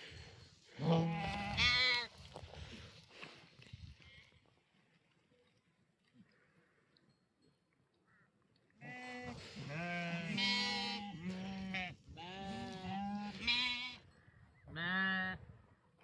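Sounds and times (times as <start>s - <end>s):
livestock bleating: 0.8s - 2.1s, 8.8s - 14.0s, 14.7s - 15.4s.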